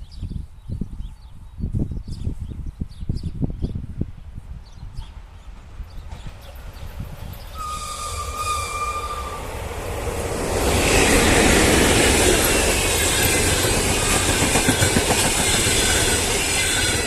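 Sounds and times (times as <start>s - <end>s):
high squeal from train wheels: 6.9s - 17.0s
locomotive horn blast: 7.6s - 9.6s
train wheels clattering over rail joints: 10.0s - 17.0s.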